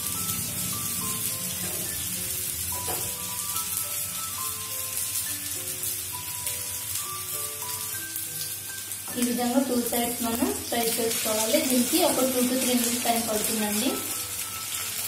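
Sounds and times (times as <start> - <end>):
background music: 0.0 - 15.0
onion rings sizzling in hot oil: 0.0 - 15.0.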